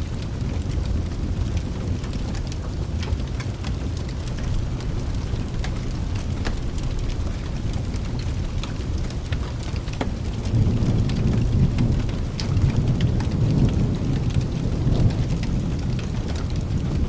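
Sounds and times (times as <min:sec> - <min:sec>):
rain rumbling: 0:00.0 - 0:17.0
wood fire crackling: 0:00.0 - 0:17.0
distant thunder: 0:04.2 - 0:17.0.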